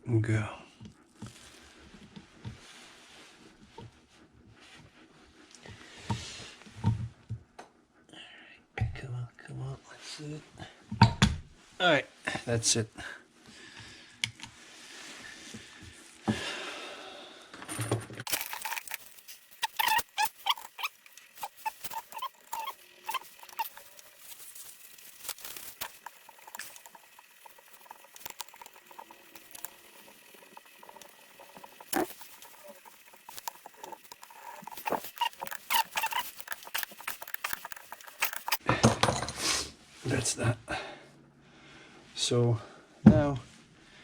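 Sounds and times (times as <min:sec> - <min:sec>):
metal tools clicking and scraping: 0:18.3 - 0:38.6.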